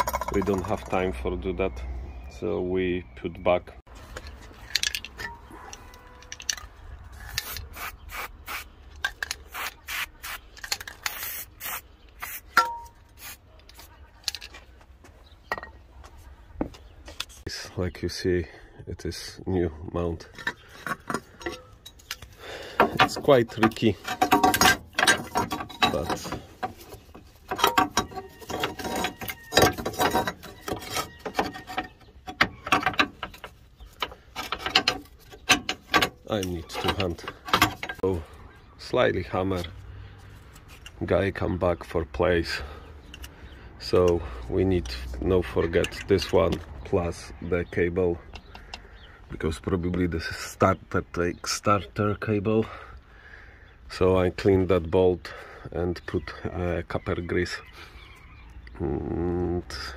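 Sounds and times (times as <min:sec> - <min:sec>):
hand tools clicking and knocking: 0:00.0 - 0:01.2, 0:04.1 - 0:07.7, 0:12.5 - 0:13.0, 0:20.2 - 0:38.2, 0:43.0 - 0:44.2, 0:44.8 - 0:46.6, 0:48.3 - 0:49.0
metal scraping and rubbing: 0:20.3 - 0:38.2.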